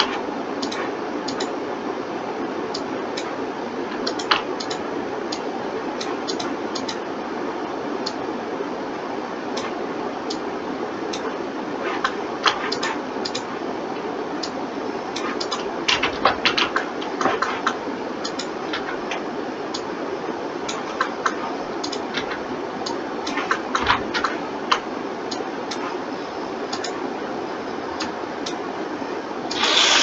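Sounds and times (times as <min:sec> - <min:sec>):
mouse and keyboard clicks: 0:00.0 - 0:01.5, 0:02.8 - 0:05.4, 0:11.9 - 0:13.5, 0:15.2 - 0:19.2, 0:20.7 - 0:22.4, 0:26.7 - 0:27.0
steady background hum: 0:00.0 - 0:30.0.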